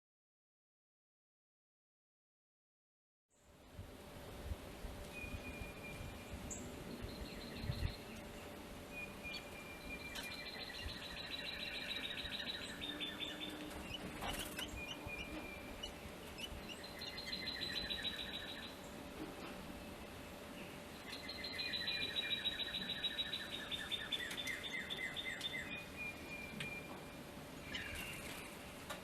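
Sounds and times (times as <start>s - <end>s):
songbird rapid trill: 5.2s - 19.0s, 20.9s - 28.6s.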